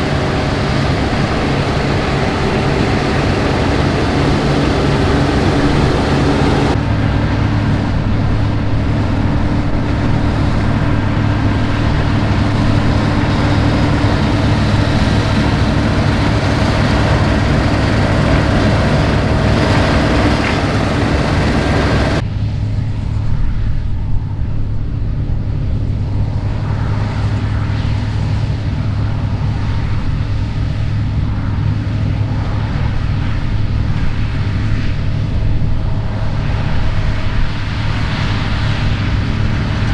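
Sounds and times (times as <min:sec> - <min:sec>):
combine harvester engine drone: 0:00.0 - 0:22.6.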